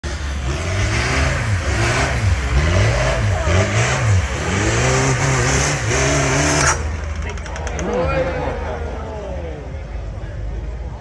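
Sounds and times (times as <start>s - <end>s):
tractor engine revving: 0.0s - 8.3s.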